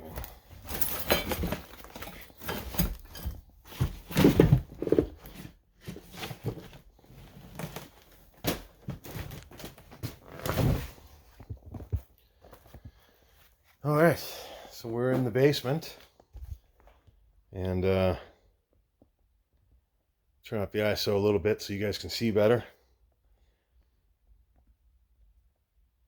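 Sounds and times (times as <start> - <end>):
footsteps with thuds and knocks: 0.0 - 13.8
rustling: 0.0 - 13.8.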